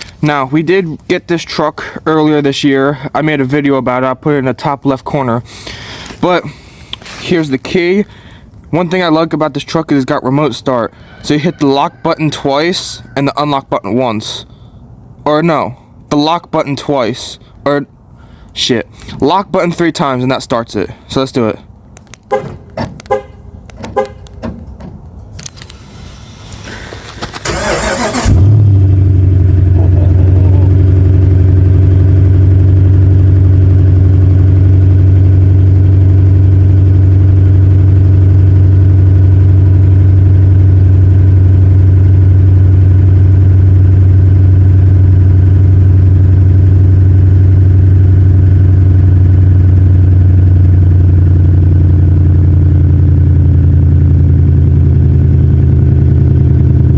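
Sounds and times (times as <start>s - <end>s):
truck engine cranking: 0.0s - 0.3s, 21.8s - 34.7s
clicks: 21.8s - 25.8s
engine idling loudly: 26.9s - 56.9s.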